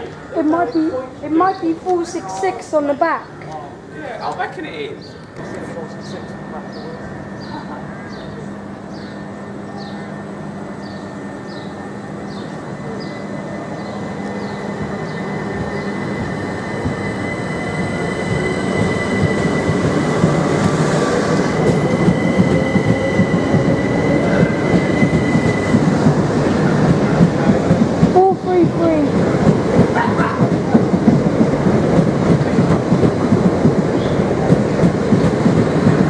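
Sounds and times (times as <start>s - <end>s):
electric train wheel rumble: 0.0s - 36.0s
steady high whine: 3.4s - 28.0s.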